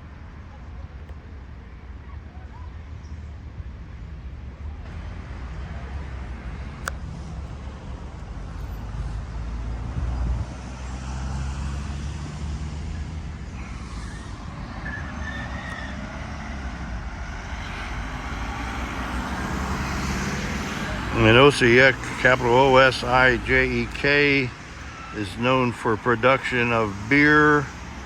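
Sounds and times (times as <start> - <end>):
vehicle engine passing: 4.9 - 28.0
short high squeals: 13.6 - 16.7.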